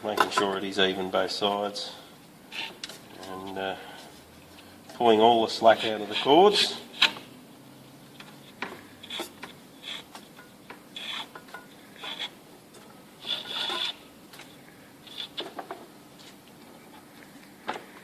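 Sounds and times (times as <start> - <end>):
cord rubbing as pulled: 13.2 - 14.0.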